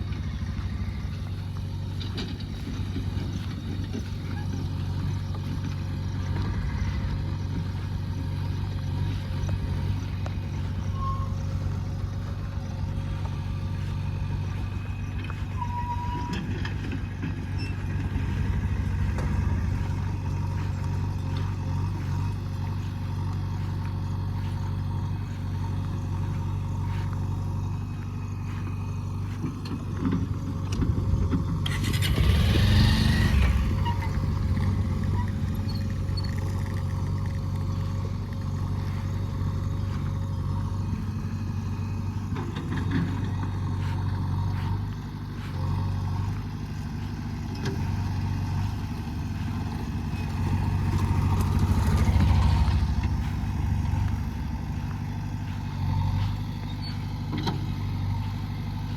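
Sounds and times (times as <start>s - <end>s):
diesel engine of earthmover running: 0.0s - 58.9s.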